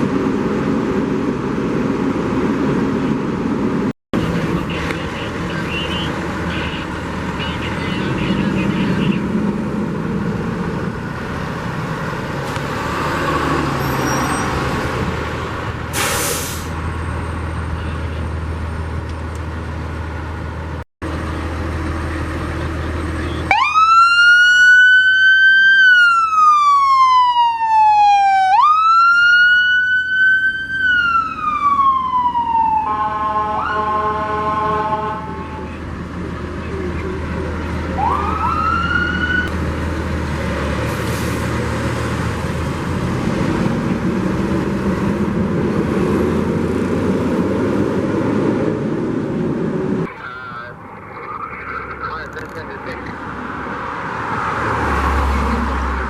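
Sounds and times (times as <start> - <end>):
vehicle rumble: 0.0 - 56.0
emergency vehicle siren wailing: 21.8 - 41.6.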